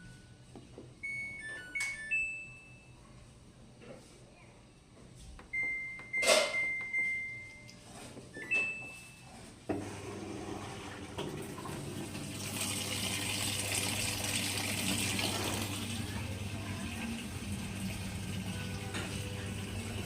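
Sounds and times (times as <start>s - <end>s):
washing machine beeps: 0.0s - 3.2s, 5.5s - 20.0s
valve humming: 9.7s - 20.0s
water rushing into machine: 9.8s - 20.0s.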